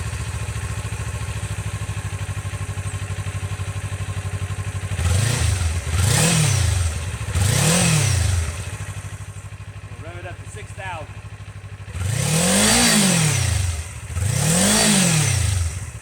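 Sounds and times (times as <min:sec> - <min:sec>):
motorcycle engine idling: 0:00.0 - 0:16.0
motorcycle engine revving: 0:00.0 - 0:16.0.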